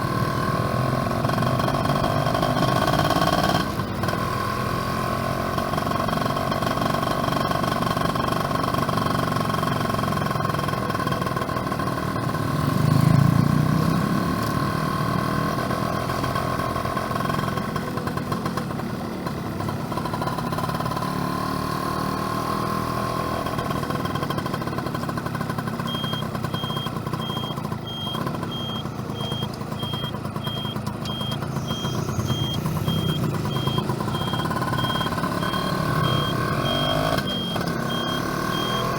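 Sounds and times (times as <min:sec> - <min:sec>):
motorcycle engine running: 0:00.0 - 0:38.9
faint high beep: 0:25.9 - 0:38.9.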